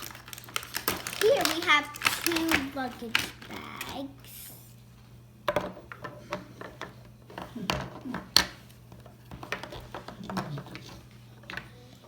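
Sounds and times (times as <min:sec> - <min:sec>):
plastic toy pieces clattering: 0:00.0 - 0:04.0.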